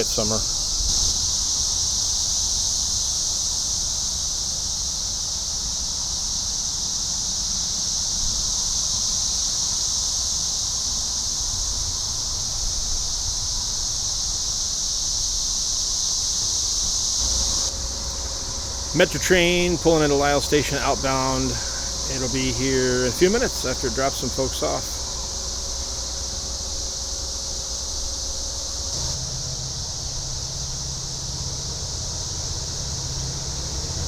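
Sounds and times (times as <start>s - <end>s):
cicadas droning: 0.0s - 34.0s
low rumble: 17.2s - 22.3s.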